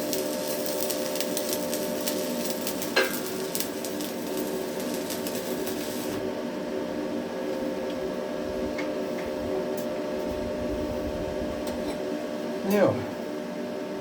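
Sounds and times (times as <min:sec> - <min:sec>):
welding arc crackling: 0:00.0 - 0:06.3
electrical hum: 0:00.0 - 0:14.0.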